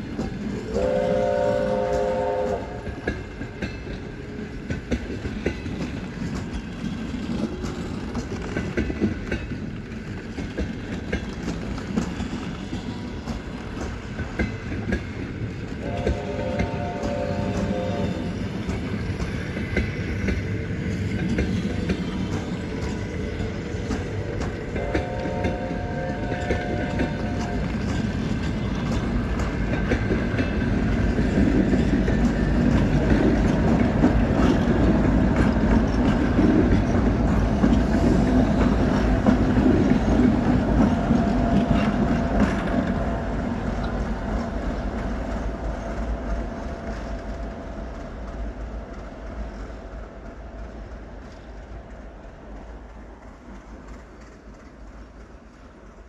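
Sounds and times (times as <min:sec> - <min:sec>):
passenger train rumbling past: 0:00.0 - 0:56.0
train horn: 0:00.6 - 0:03.2, 0:15.8 - 0:18.4, 0:24.6 - 0:28.0
wheels clacking over rail joints: 0:01.7 - 0:56.0.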